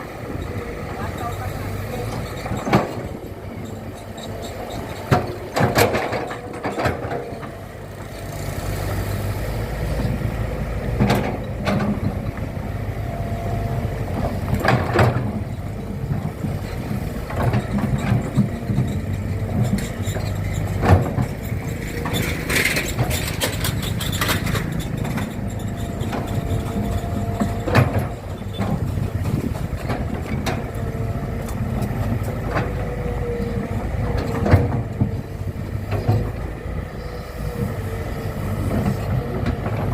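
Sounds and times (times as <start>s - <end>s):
heavy machinery engine running: 0.0s - 39.9s
sharp clanks and knocks: 2.1s - 3.2s, 4.0s - 7.5s, 11.0s - 12.2s, 14.2s - 30.8s.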